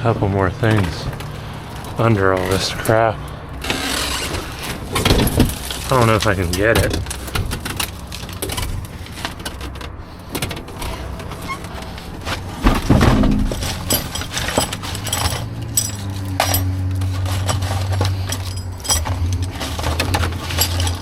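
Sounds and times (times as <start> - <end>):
steady low hum: 12.0 - 21.0
debris knocking and scraping: 12.2 - 21.0.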